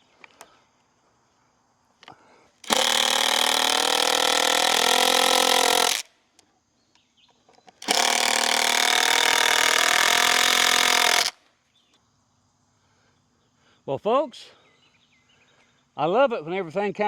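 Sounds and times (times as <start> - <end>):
power drill driving screws: 2.6 - 6.1, 7.8 - 11.4.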